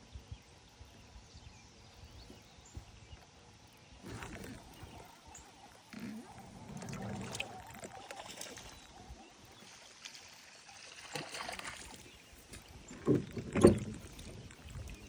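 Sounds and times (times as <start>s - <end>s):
water and handling noise: 4.0s - 15.0s.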